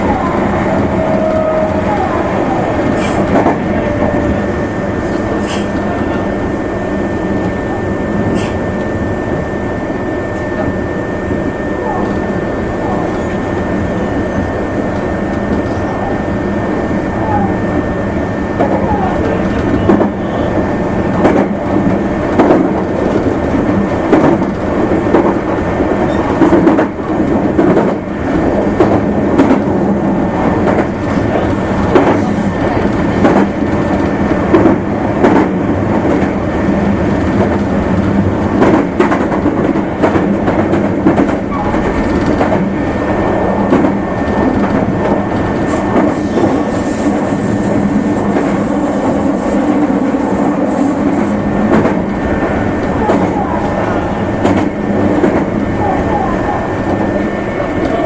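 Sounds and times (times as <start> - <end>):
train wheels rumbling on rail: 0.0 - 58.0
clacks over rail joints: 21.1 - 28.0, 30.6 - 42.7.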